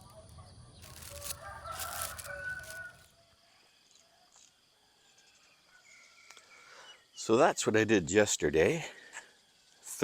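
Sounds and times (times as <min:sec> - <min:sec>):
rooster crowing: 0:00.9 - 0:03.0.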